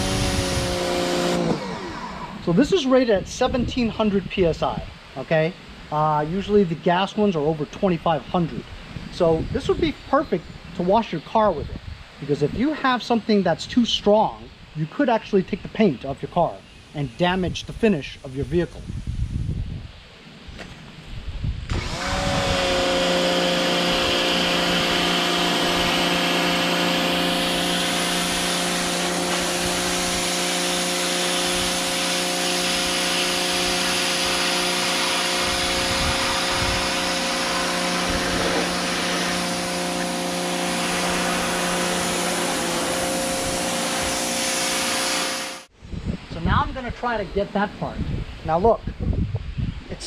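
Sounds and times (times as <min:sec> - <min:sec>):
pressure washer motor humming: 0:00.0 - 0:02.8, 0:21.7 - 0:45.7
water spray hissing: 0:21.7 - 0:45.7.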